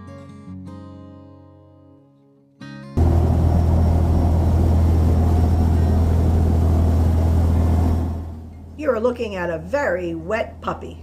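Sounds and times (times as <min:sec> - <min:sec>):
acoustic guitar music: 0:00.0 - 0:03.0
boat engine rumbling: 0:03.0 - 0:10.2.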